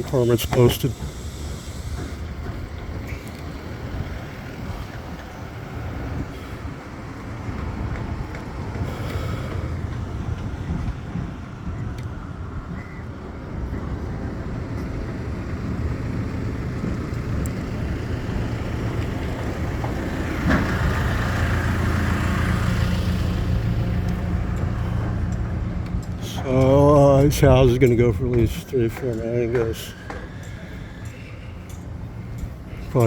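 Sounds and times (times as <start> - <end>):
vehicle engine running: 14.2 - 33.0.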